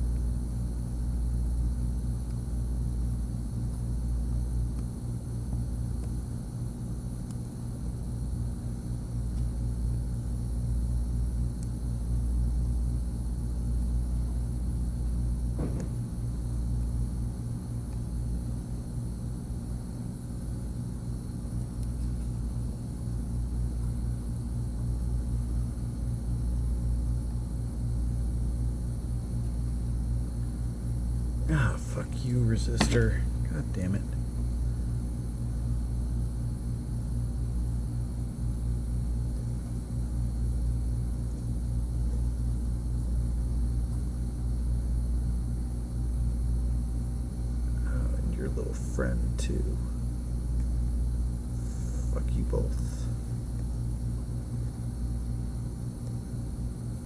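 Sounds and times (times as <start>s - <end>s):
steady low hum: 0.0s - 57.0s
constant high hiss: 31.2s - 34.9s, 47.3s - 55.6s.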